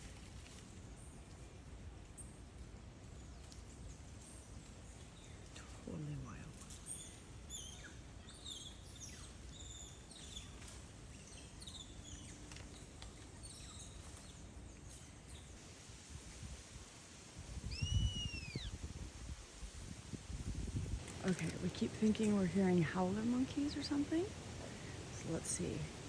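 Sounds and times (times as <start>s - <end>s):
forest birds chirping: 0.0s - 26.0s
low rumbling microphone noise: 15.6s - 26.0s
clear arched bird whistle: 17.7s - 18.8s.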